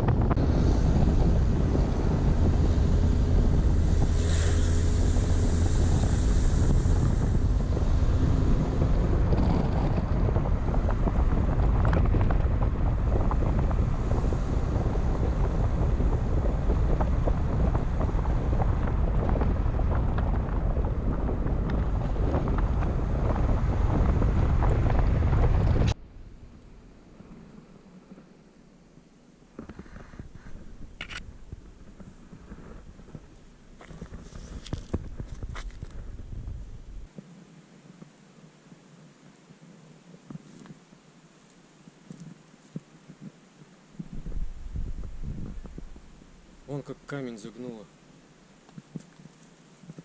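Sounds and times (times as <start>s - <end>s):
wind buffeting microphone: 0.0s - 26.9s, 29.6s - 37.1s, 44.0s - 47.6s
low engine hum: 0.0s - 37.1s, 44.0s - 47.6s.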